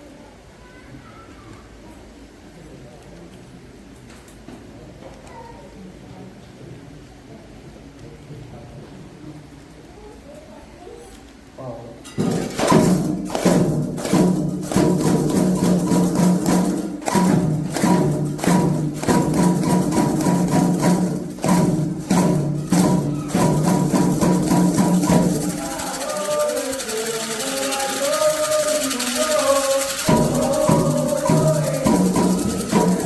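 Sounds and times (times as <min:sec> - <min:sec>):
ritual percussion drumming: 0:12.1 - 0:33.0
voices singing: 0:14.7 - 0:33.0.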